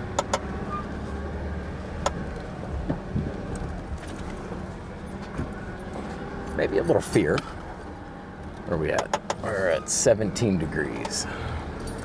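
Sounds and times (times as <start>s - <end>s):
jeep engine running low: 0.0s - 12.0s
sharp clicks and knocks: 0.1s - 0.5s, 2.0s - 4.4s, 8.9s - 9.4s.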